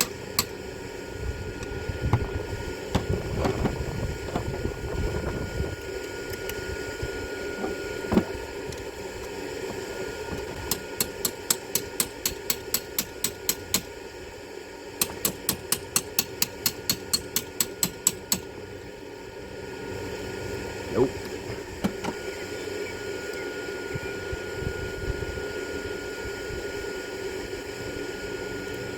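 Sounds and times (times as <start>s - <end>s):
shop fan drone: 0.0s - 28.9s
ratchet clicking: 10.7s - 13.8s, 15.0s - 18.4s.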